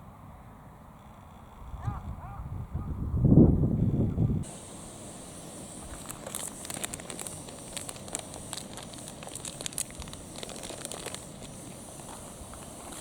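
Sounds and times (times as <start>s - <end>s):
faint steady hiss: 4.4s - 13.0s
wood fire crackling: 4.5s - 13.0s.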